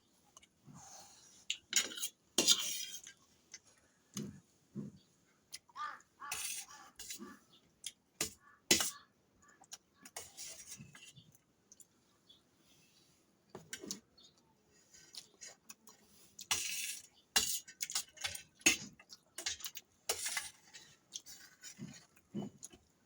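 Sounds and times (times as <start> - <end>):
cutlery scraping a plate: 1.7 - 3.2, 16.4 - 22.5.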